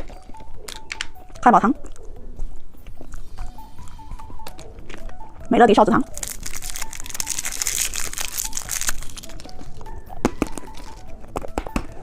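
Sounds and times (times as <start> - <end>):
plastic wrapper crinkling and tearing: 6.1 - 9.8
wrapper clicks: 6.2 - 9.8.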